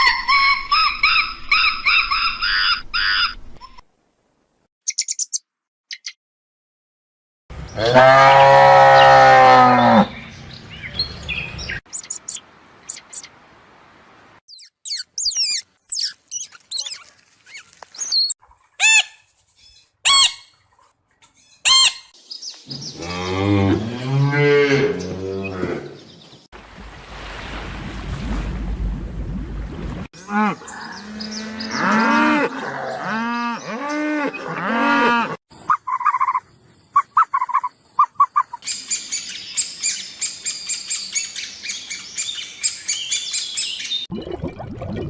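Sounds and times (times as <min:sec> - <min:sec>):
short high bird chirps: 0:04.9 - 0:06.2, 0:11.8 - 0:13.3, 0:14.5 - 0:20.5
cow mooing: 0:07.8 - 0:10.2, 0:23.0 - 0:26.0, 0:30.2 - 0:35.4.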